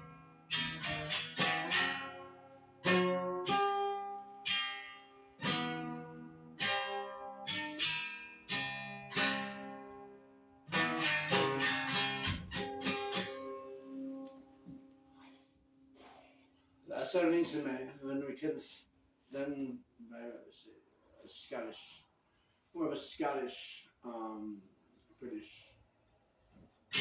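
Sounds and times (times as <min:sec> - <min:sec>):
stringed instrument strummed: 0:00.0 - 0:14.8.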